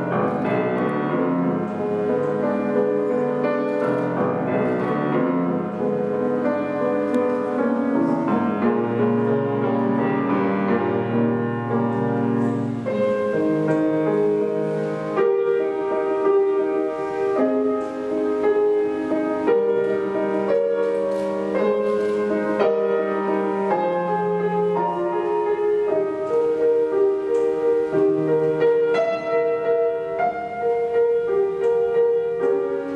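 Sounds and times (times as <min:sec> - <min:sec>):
solo piano classical piece: 0:00.0 - 0:32.9.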